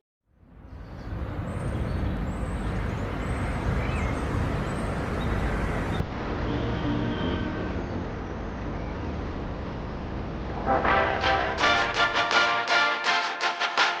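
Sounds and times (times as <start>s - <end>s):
low rushing noise: 1.1s - 12.2s.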